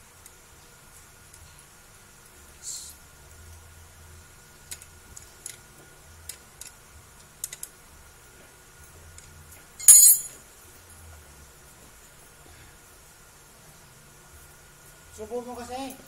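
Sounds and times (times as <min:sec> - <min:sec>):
short metallic rattle: 0:09.8 - 0:10.3.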